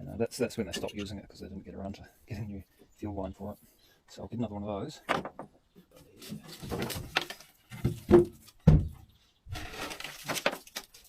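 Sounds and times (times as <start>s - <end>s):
sharp handling knocks and clunks: 5.0s - 5.6s, 6.2s - 10.9s
rustling scrape: 9.5s - 11.0s.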